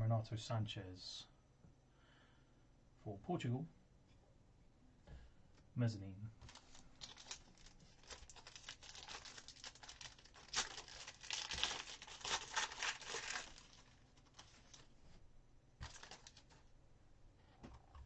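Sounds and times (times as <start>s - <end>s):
card packaging crinkling: 6.4s - 15.0s, 15.8s - 16.7s.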